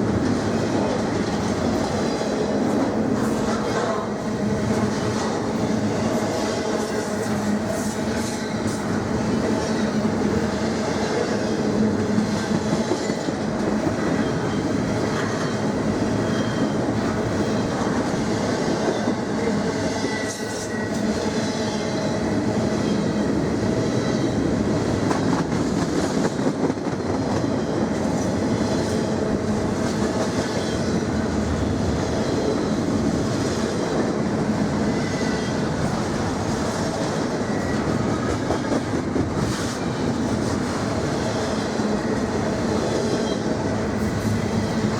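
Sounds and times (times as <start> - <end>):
freight train wheels clacking: 0.0 - 44.9
train wheels squealing: 4.8 - 24.5, 30.2 - 31.2, 34.6 - 44.9.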